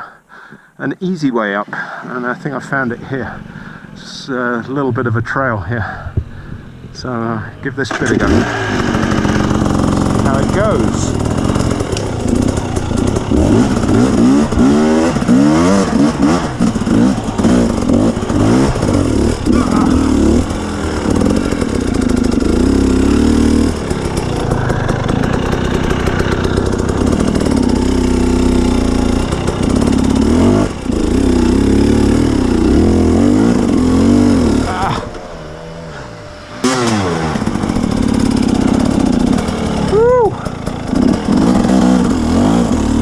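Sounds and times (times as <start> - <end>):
dirt bike engine revving: 1.2 - 43.0.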